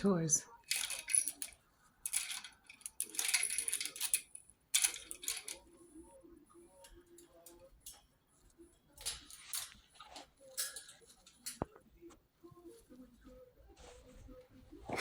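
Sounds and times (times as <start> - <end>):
bird toy rattling and jangling: 0.5 - 11.6.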